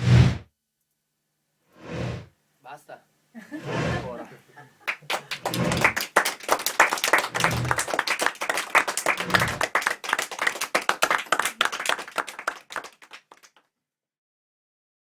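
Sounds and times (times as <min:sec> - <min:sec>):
audience applauding: 0:03.8 - 0:13.6.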